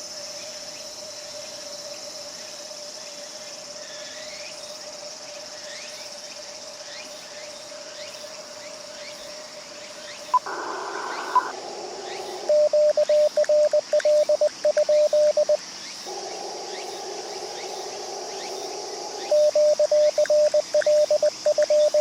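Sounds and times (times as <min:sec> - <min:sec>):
insects chirping: 0:00.0 - 0:22.0
radio receiver noise: 0:10.3 - 0:11.5
steady single tone: 0:10.4 - 0:11.5.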